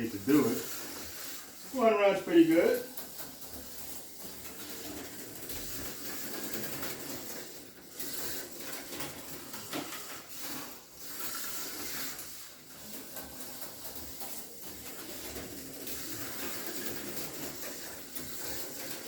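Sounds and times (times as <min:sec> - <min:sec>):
slot car motor whirring: 0:00.0 - 0:19.0
tires hissing on plastic track: 0:00.0 - 0:19.0.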